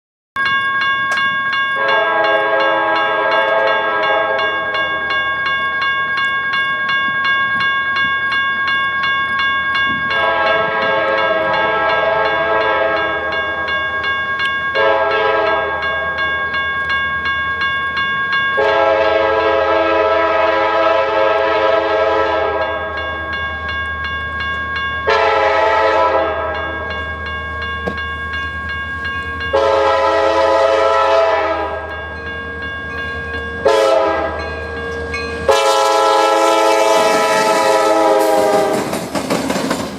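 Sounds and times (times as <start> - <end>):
locomotive air horn blasts: 1.8 - 4.7, 10.1 - 13.2, 14.8 - 15.8, 18.6 - 22.8, 25.1 - 26.8, 29.5 - 31.9, 33.4 - 38.8
train rumbling: 9.7 - 39.9.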